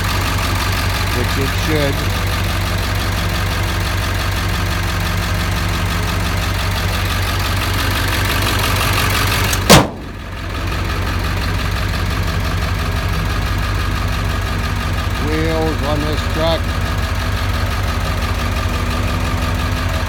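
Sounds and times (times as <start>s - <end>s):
diesel engine idling: 0.0s - 20.0s
sharp loud click: 9.5s - 10.1s.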